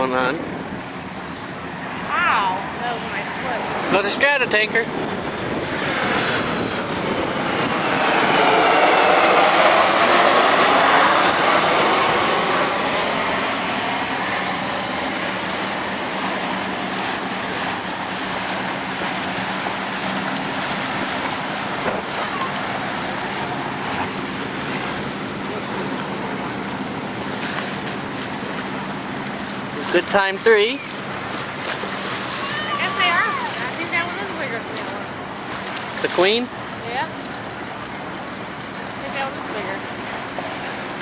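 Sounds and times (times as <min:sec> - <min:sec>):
jet engines roaring overhead: 0:00.0 - 0:41.0.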